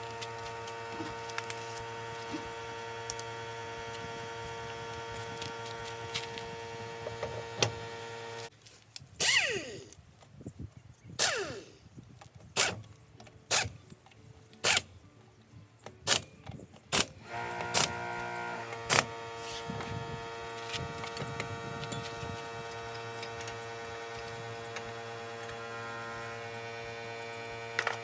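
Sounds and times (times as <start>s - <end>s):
air impact wrench: 9.2s - 10.0s, 11.2s - 11.8s, 12.6s - 12.8s, 13.5s - 13.8s, 16.9s - 28.0s.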